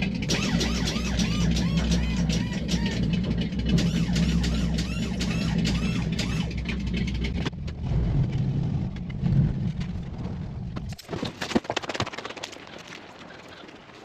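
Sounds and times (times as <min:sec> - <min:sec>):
skid steer engine running: 0:00.0 - 0:10.9
knocks and clicks: 0:00.3 - 0:07.8.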